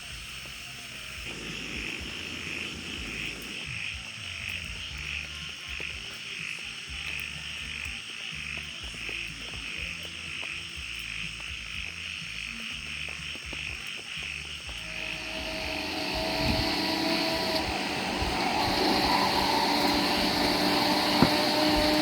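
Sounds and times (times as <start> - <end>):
faint music with low beat: 0.0 - 22.0
frogs calling: 0.0 - 22.0
machine whir with hum: 14.9 - 22.0.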